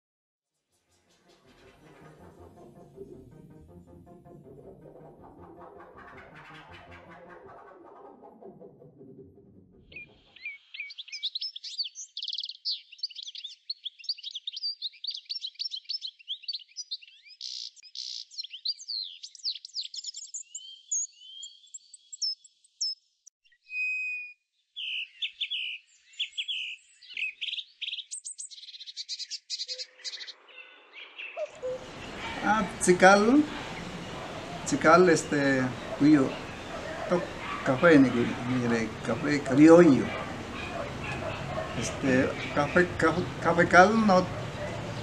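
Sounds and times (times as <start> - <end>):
birds chirping and singing: 9.9 - 45.0.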